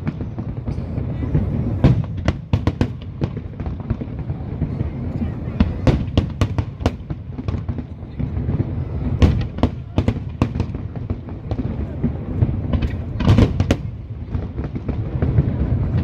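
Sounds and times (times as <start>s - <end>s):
fireworks bangs and crackling: 0.0s - 16.0s
low rumble of distant explosions: 0.0s - 16.0s.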